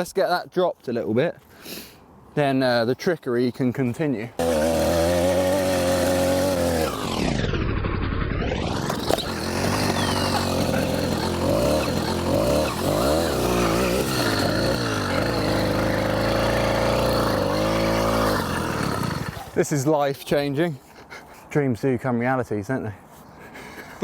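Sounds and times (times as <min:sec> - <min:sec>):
two-stroke engine revving: 0:04.4 - 0:19.6.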